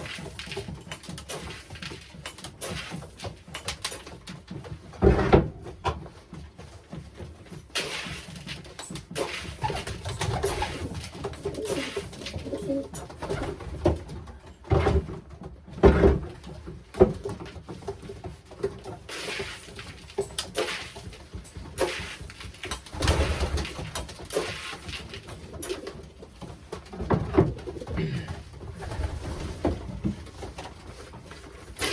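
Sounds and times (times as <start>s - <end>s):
bumps and rustles: 0.0s - 31.9s
pigeons cooing: 10.4s - 13.0s.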